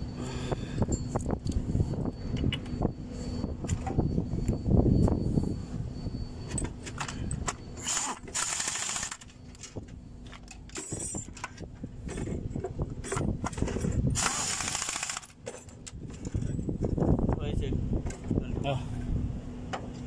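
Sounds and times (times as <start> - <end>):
hand tools clinking on metal: 8.8 - 12.4.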